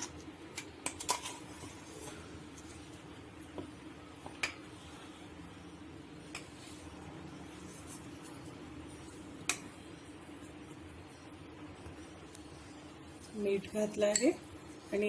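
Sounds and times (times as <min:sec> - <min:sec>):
faint steady hum: 0:00.0 - 0:15.0
spoon clinking on dish: 0:14.0 - 0:14.4.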